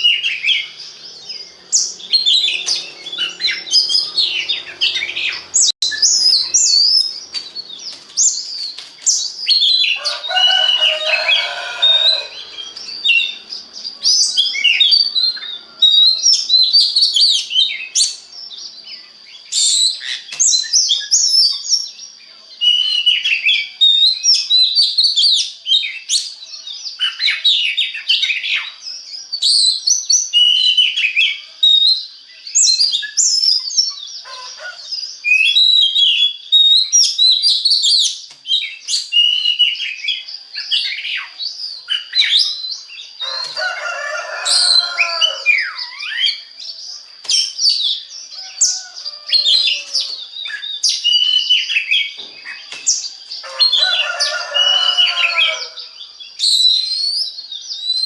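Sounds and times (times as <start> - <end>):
harsh raspy bird notes: 0.0 - 8.6
songbird singing varied song: 0.0 - 58.0.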